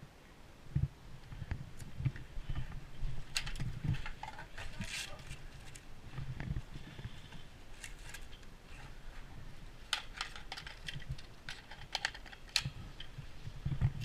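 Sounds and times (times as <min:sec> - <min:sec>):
sharp irregular clicks and snaps: 0:09.9 - 0:13.2.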